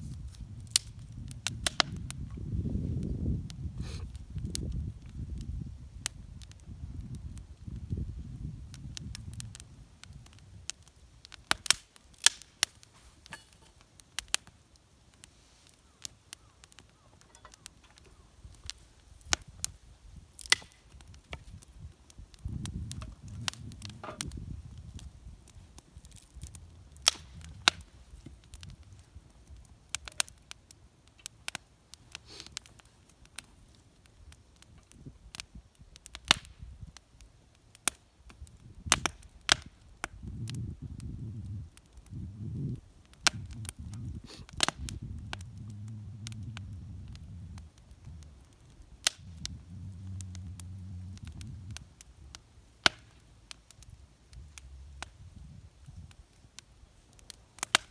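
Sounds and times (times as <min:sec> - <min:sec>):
wood fire crackling: 0:00.0 - 0:57.9
low rumbling noise: 0:43.4 - 0:52.4, 0:54.0 - 0:56.0.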